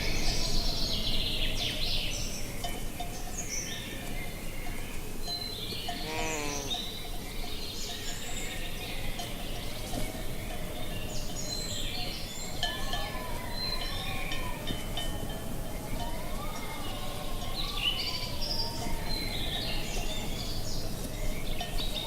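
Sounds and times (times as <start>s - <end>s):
birdsong chirping: 0.0s - 22.0s
livestock animal bleating: 5.9s - 6.8s.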